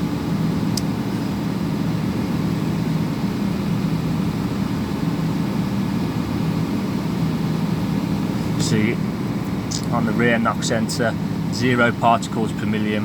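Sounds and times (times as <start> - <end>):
diesel truck engine idling: 6.1 - 13.0.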